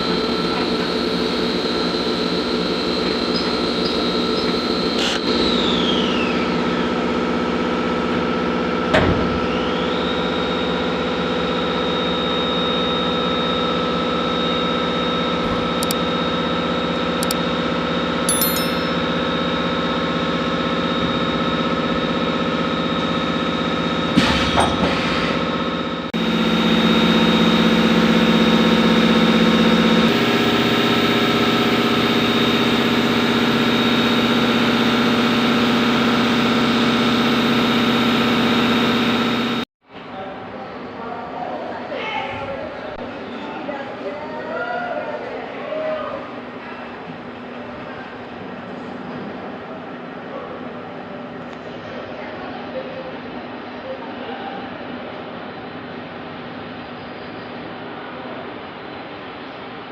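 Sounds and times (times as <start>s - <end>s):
milling machine spindle whine: 0.0s - 7.6s, 25.4s - 39.6s.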